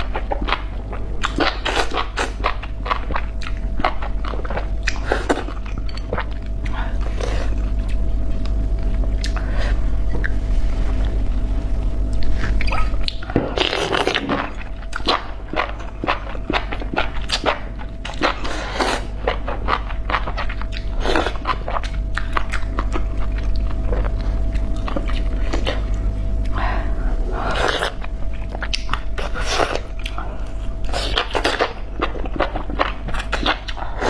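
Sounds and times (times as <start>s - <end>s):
low electrical hum: 0.0s - 34.0s
chewing with wet clicks and smacks: 0.1s - 6.8s, 19.2s - 26.6s, 28.4s - 29.1s.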